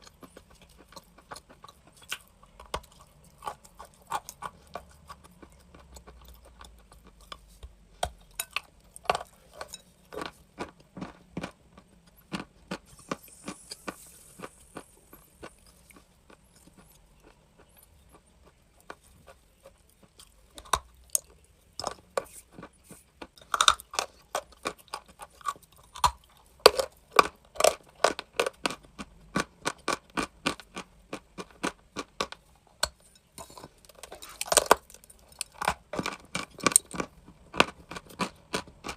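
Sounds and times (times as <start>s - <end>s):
chalk being bitten and chewed: 9.2s - 32.4s.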